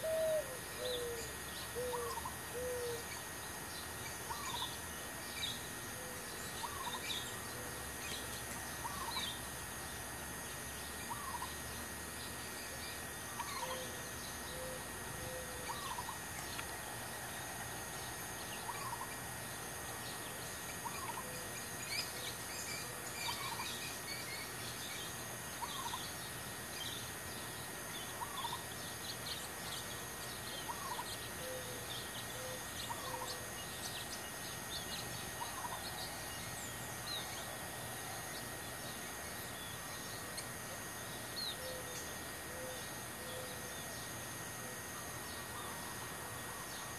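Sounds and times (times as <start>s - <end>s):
faint bird chirps: 0.0s - 9.4s, 10.8s - 16.8s
steady hiss: 0.0s - 46.9s.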